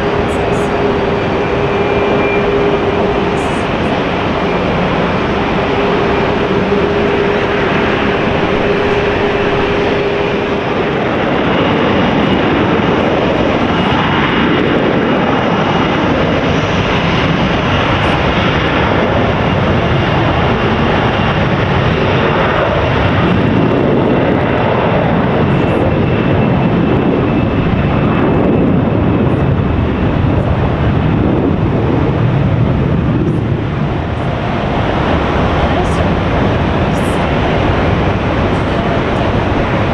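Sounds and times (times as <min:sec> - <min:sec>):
low steady tone: 0:00.0 - 0:11.8, 0:33.5 - 0:39.9
high whine: 0:00.0 - 0:22.4, 0:26.1 - 0:39.9
jet engines running: 0:00.0 - 0:39.9.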